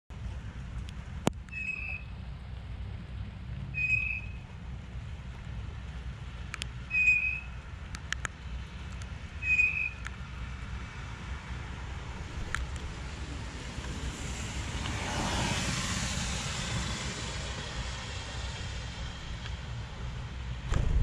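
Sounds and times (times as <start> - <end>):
low traffic rumble: 0.1 - 21.0
bird calling: 1.5 - 2.1, 3.8 - 4.4, 6.9 - 7.6, 9.4 - 10.1
sharp ticks: 7.9 - 10.2.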